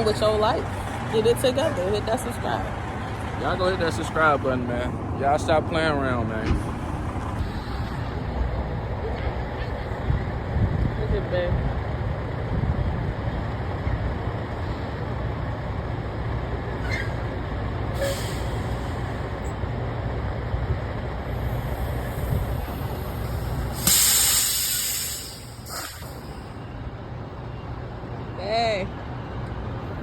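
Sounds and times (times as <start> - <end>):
diesel engine rumbling: 0.0 - 30.0
air brake hiss: 18.0 - 19.0, 21.8 - 26.6.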